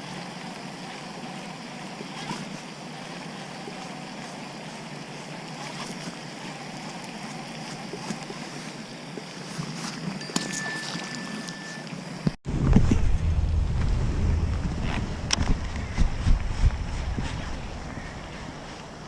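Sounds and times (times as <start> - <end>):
water noise: 0.0 - 19.0
wind on microphone: 12.5 - 19.0.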